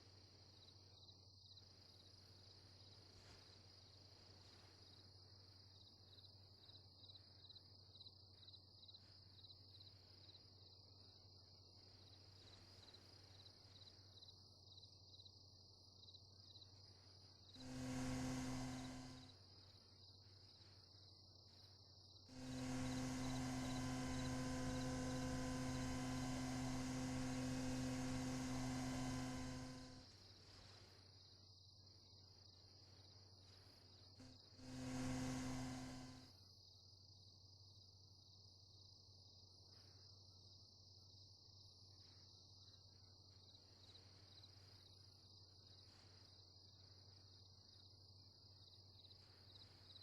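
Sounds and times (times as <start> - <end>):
insects trilling: 17.6 - 19.3, 22.3 - 30.0, 34.2 - 36.2
loud low pitched hum: 17.6 - 19.3, 22.3 - 30.2, 34.2 - 36.3.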